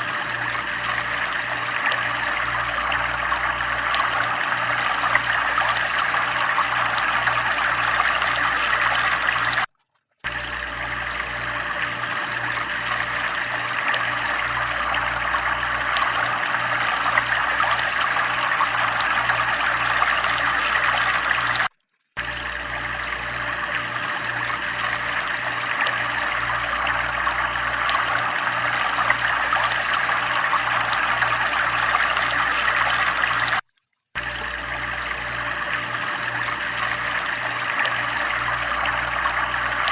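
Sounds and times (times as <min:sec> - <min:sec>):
water splashing from a pipe: 0:00.0 - 0:39.9.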